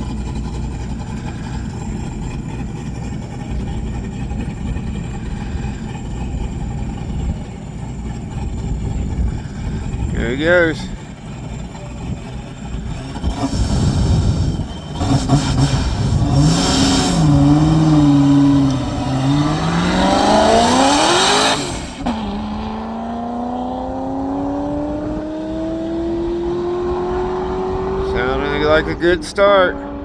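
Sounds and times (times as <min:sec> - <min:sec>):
race car accelerating hard: 0:00.0 - 0:30.0.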